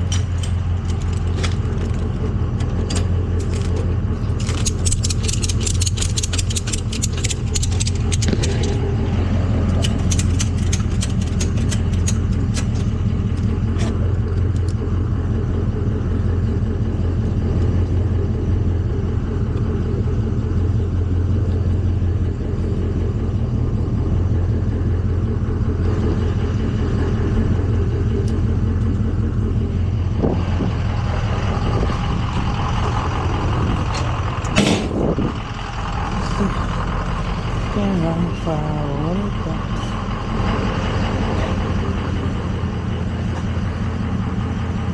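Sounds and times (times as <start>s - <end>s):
metallic clicks and rattles: 0.0s - 8.9s, 9.6s - 14.8s
truck engine running: 0.0s - 44.9s.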